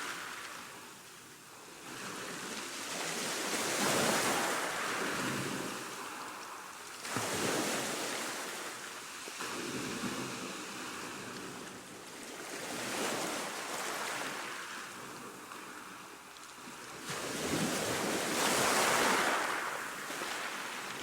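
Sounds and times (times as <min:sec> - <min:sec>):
ocean waves breaking: 0:01.9 - 0:21.0.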